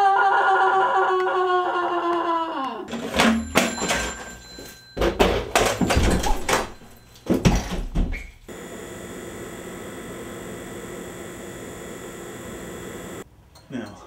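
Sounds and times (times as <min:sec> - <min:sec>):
electrical hiss and hum: 0:08.5 - 0:13.2.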